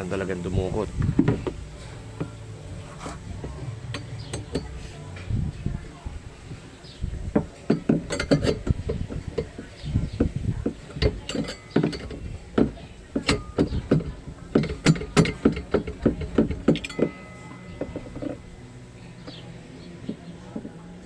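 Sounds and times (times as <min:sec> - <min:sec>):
metal tools clinking on metal: 0:00.0 - 0:21.0.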